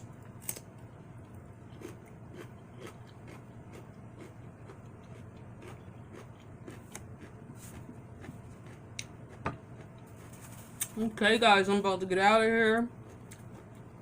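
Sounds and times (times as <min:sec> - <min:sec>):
soft chewing with mouth clicks: 0:01.2 - 0:10.2, 0:13.0 - 0:14.0.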